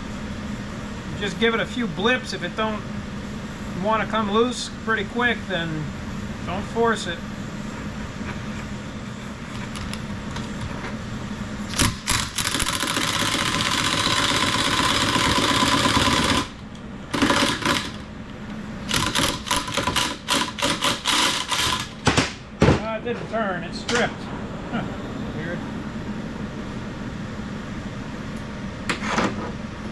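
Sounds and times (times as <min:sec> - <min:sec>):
torch flame hissing: 0:20.1 - 0:28.9.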